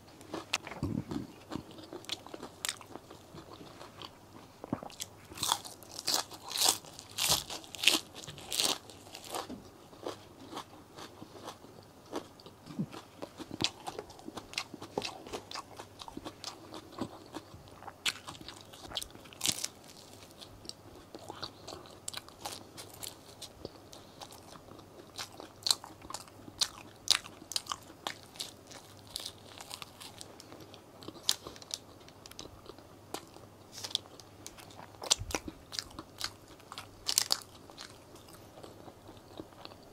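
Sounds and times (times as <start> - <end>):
soft chewing: 0.0 - 39.9
crisp crunching of lettuce: 4.7 - 12.2, 18.0 - 20.5, 25.1 - 38.0.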